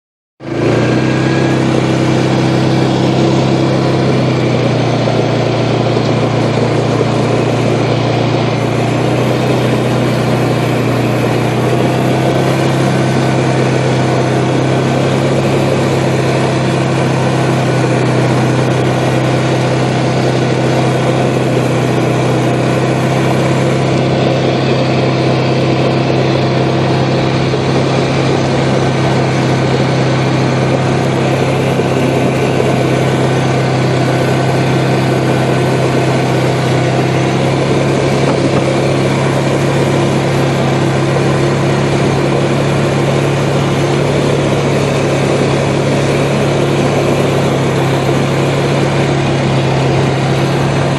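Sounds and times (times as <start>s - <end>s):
vehicle engine droning: 0.4s - 50.9s.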